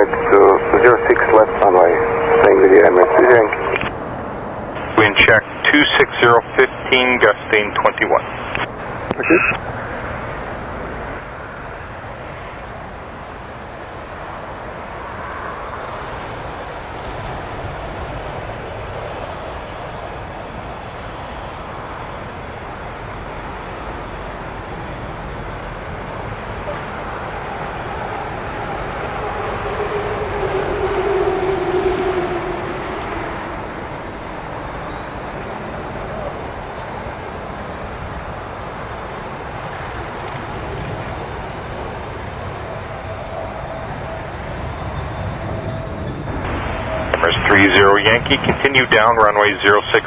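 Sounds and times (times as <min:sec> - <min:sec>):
jet engines rumbling: 0:00.0 - 0:50.0.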